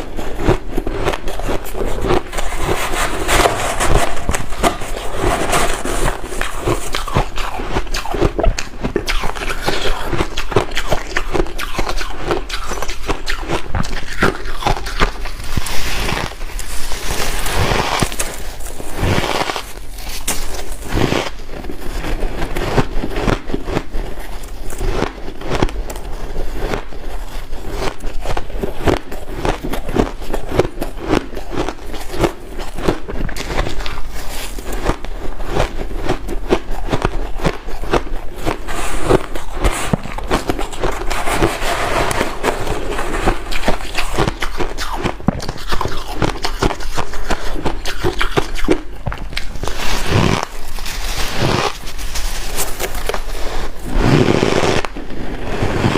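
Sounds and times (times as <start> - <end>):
chewing crunchy ice: 0.0 - 55.9.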